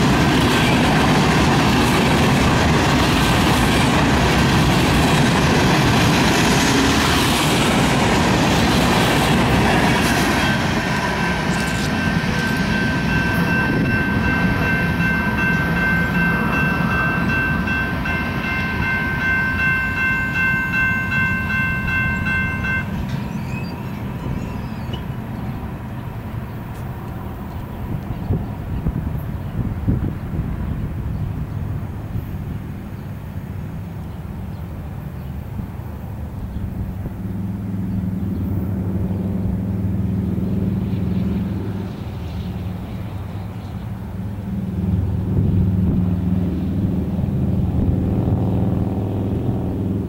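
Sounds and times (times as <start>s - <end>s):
train wheels clattering on rails: 0.0s - 29.3s
high ringing tone: 10.4s - 25.2s.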